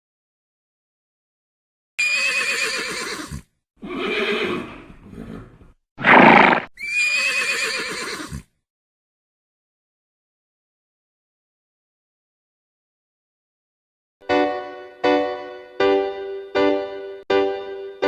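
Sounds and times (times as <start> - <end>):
horse whinnying: 2.0 - 8.5.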